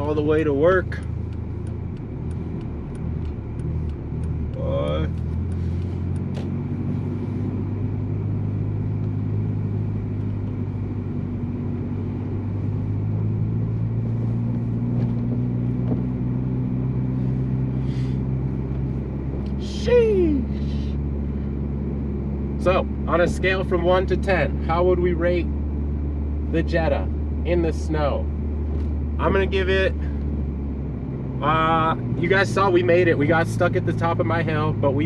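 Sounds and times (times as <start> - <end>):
light regular ticking: 0.0 - 7.0
car engine and road drone: 0.0 - 35.0.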